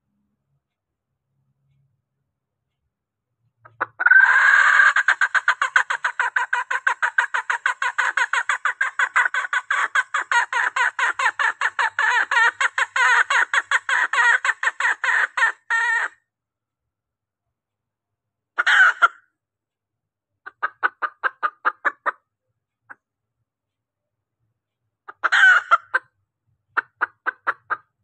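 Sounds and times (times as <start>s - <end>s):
hen clucking calls: 3.7s - 16.2s, 18.6s - 19.2s, 20.5s - 22.2s, 25.1s - 26.1s, 26.8s - 28.0s.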